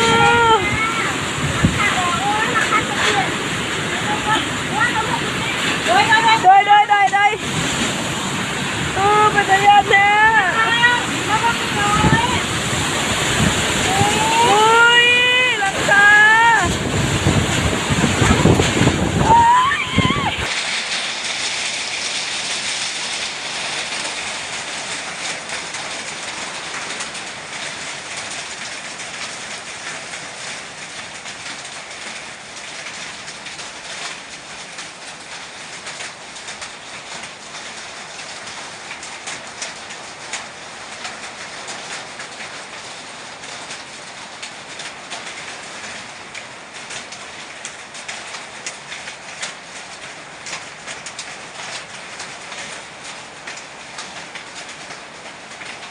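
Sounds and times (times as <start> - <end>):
gusting wind: 0.0 - 31.2
heavy rain: 0.0 - 55.9.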